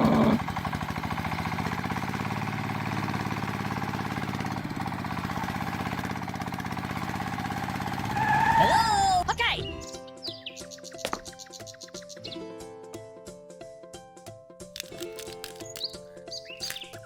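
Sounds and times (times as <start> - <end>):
small engine chugging: 0.0 - 9.2.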